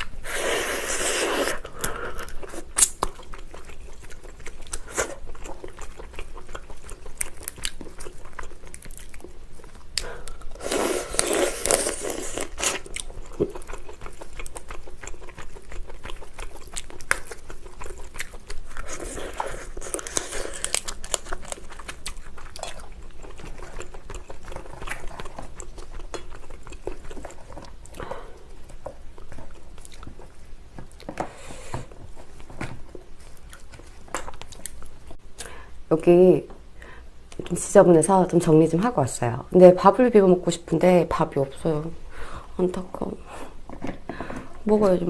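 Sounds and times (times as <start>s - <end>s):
crunching while eating: 0.0s - 35.2s
wet chewing with mouth clicks: 0.0s - 35.7s.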